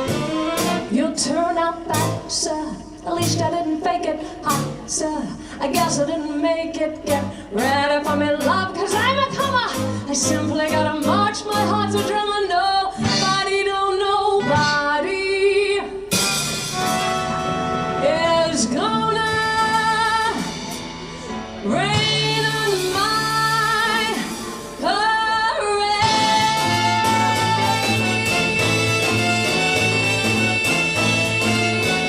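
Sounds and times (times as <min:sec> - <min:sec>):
band accompaniment: 0:00.0 - 0:03.6, 0:07.0 - 0:12.4, 0:13.0 - 0:32.0
woman singing show tune: 0:21.6 - 0:29.3.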